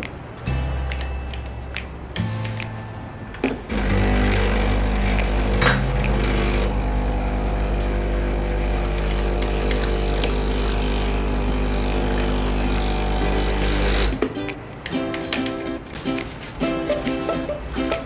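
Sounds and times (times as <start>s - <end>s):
espresso machine pump buzzing: 3.7s - 14.2s.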